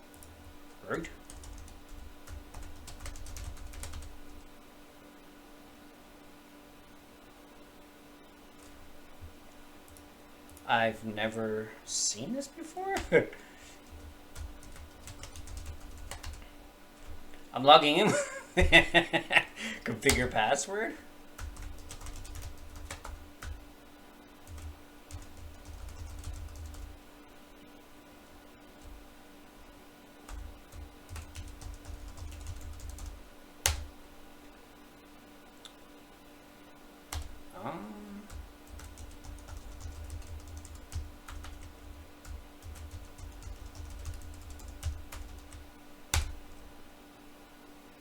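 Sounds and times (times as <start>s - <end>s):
steady low hum: 0.0s - 48.0s
keyboard keystrokes clicking: 30.3s - 33.9s, 38.3s - 46.4s.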